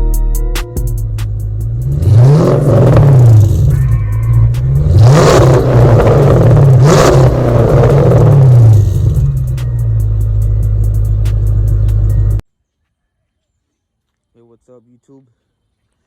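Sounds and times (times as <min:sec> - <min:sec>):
truck engine revving: 0:01.1 - 0:12.4.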